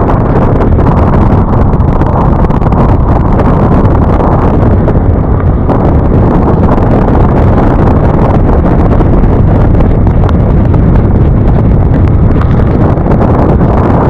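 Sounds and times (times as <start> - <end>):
road and vehicle noise: 0.0 - 14.0
wind noise on microphone: 0.0 - 14.0.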